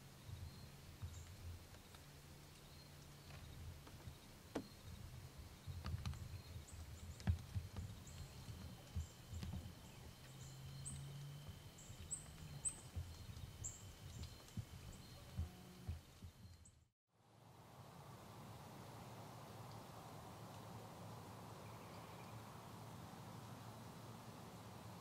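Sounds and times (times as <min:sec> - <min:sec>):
small birds chirping: 0:00.0 - 0:16.9, 0:21.6 - 0:22.5.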